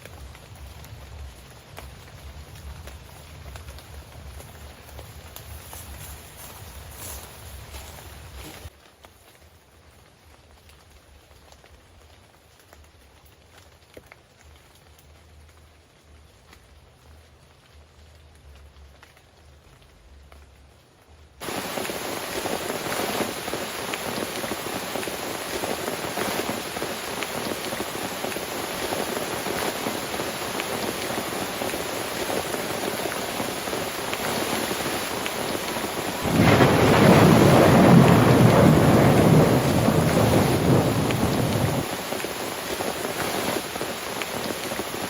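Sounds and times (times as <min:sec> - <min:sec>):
heavy rain falling: 0:00.0 - 0:08.8, 0:09.6 - 0:45.0
loud rumble of thunder: 0:36.2 - 0:42.0.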